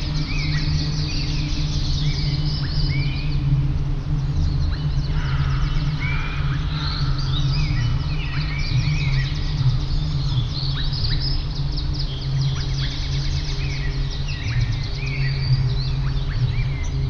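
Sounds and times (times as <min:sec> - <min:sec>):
songbirds chirping: 0:00.0 - 0:17.0
steady low rumble: 0:00.0 - 0:17.0.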